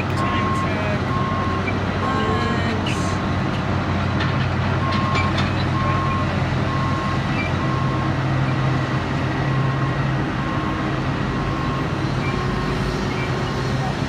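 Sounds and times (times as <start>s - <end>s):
backup alarm beeping: 0.0s - 3.2s
truck engine running: 0.0s - 14.0s.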